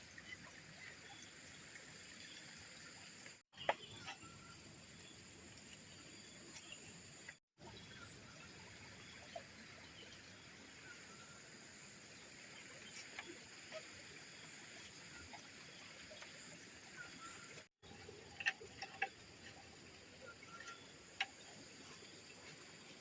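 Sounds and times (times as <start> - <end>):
small clicks and ticks: 18.2 - 19.7.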